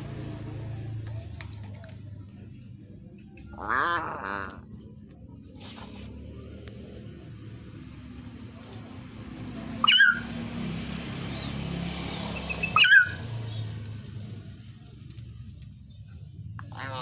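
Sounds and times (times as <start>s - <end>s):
bird whistled calls: 9.6s - 10.6s, 11.4s - 13.2s.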